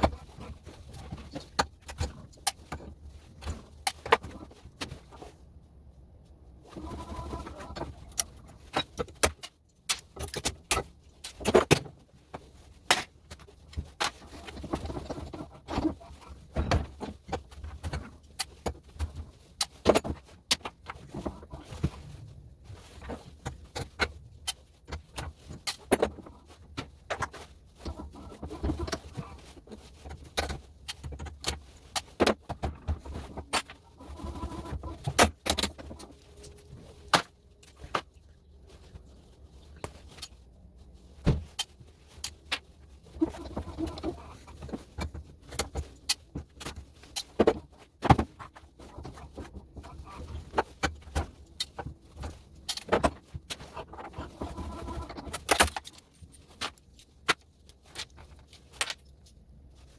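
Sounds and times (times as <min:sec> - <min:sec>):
metal parts clicking and clinking: 0:50.8 - 0:59.4.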